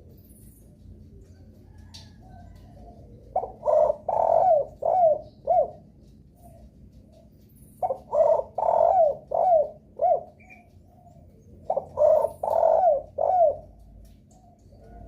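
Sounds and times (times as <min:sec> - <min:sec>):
dove cooing: 0:00.0 - 0:15.0.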